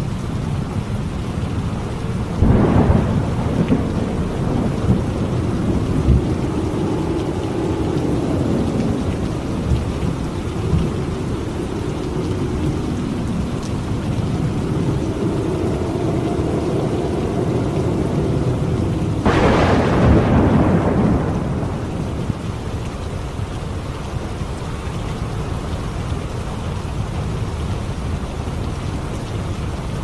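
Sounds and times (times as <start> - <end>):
heavy rain: 0.0 - 30.0
low rolling thunder: 2.0 - 24.6
sharp thunderclap: 2.4 - 9.8, 17.2 - 22.5.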